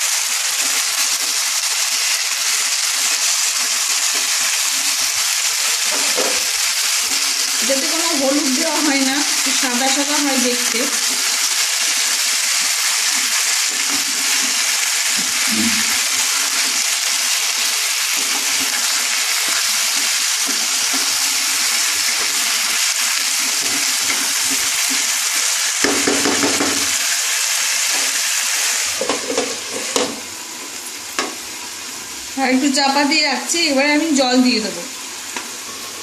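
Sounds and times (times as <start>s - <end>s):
food sizzling in a frying pan: 0.0s - 36.0s
wooden spatula stirring food: 10.9s - 28.2s.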